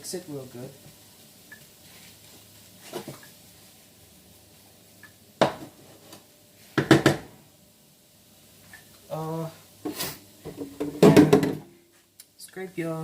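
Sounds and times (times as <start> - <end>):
utensil knocking against pan: 6.8 - 7.2.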